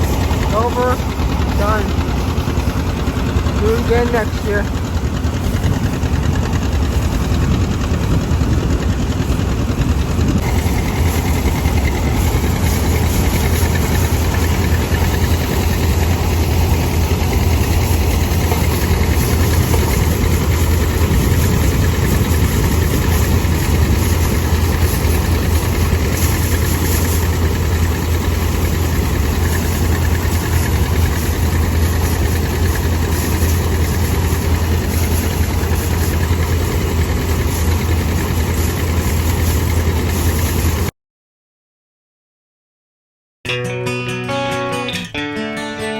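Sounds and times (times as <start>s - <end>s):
tractor engine idling: 0.0s - 40.9s.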